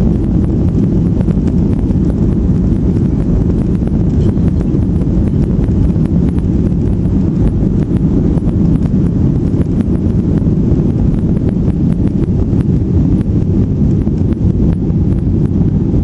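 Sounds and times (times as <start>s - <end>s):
jet engines rumbling: 0.0s - 16.0s
rushing airflow: 0.0s - 16.0s.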